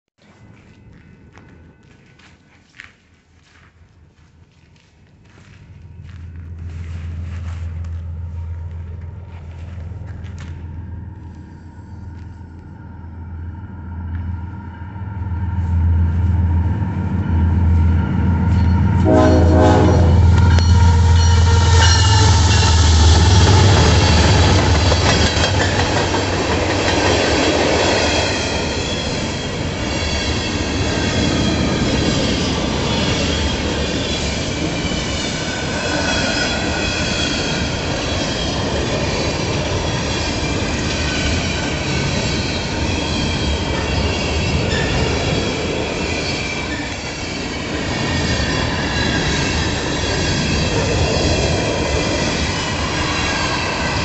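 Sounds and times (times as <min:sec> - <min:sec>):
diesel locomotive engines humming: 0:00.4 - 0:54.0
train horn blast: 0:18.6 - 0:24.0
train wheels clickety-clack: 0:19.8 - 0:54.0.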